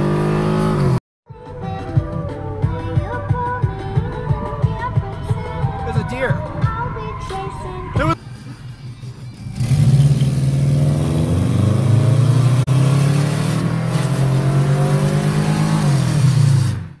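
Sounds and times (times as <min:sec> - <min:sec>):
car engine accelerating: 0:07.6 - 0:17.0.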